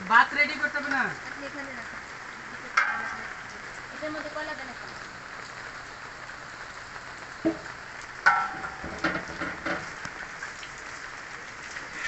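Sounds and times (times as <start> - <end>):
rain hissing: 0.0 - 12.0
sharp knock: 7.4 - 7.7
metallic clank: 7.5 - 9.9
cookware clattering: 8.3 - 9.9.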